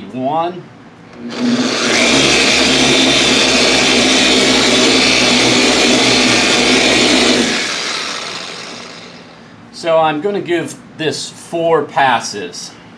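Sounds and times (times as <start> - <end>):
polisher running: 1.2 - 9.4.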